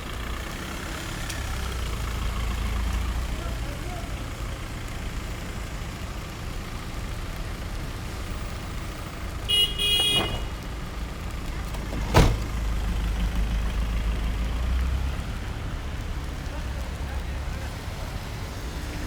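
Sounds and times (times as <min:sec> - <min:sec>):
street traffic rumble: 0:00.0 - 0:19.0
car horn honks: 0:09.5 - 0:10.6.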